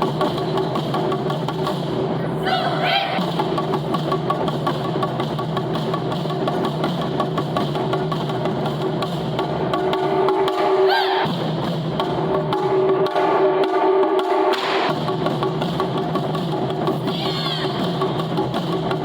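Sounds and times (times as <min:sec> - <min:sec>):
drum strikes: 0:00.0 - 0:19.0.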